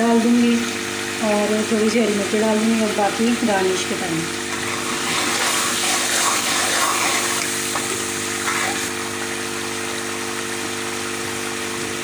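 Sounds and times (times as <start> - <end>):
masala sizzling and bubbling: 1.2 - 10.1
ladle stirring in pan: 4.5 - 9.4.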